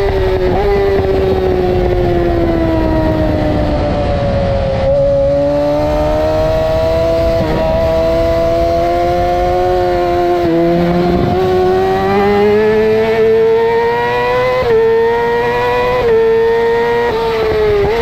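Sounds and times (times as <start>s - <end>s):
motorcycle engine accelerating: 0.0s - 18.0s
wind rush: 0.0s - 18.0s.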